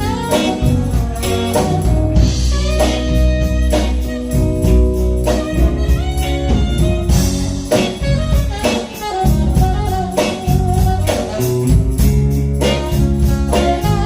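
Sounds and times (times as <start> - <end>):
blues band music: 0.0 - 14.0
drum kit beat: 0.0 - 14.0
guitar: 0.0 - 14.0.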